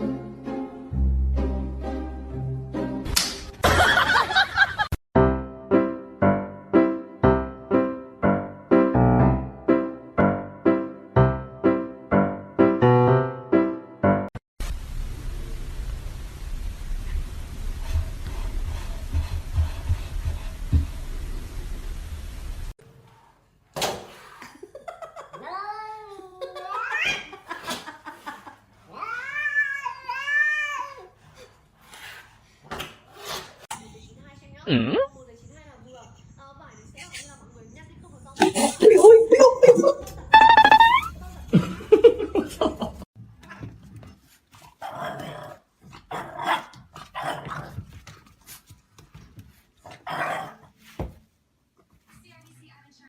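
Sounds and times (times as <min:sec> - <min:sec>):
dog barking and growling: 0:44.7 - 0:47.9, 0:49.8 - 0:50.8.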